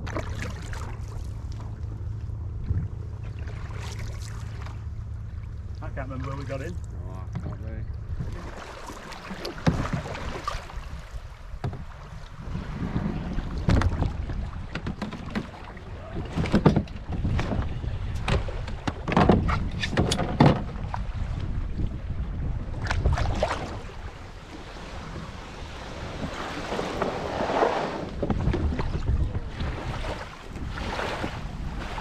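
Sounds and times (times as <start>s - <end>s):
wind buffeting microphone: 0.0s - 3.5s, 9.5s - 32.0s
water splashing around canoe: 0.0s - 32.0s.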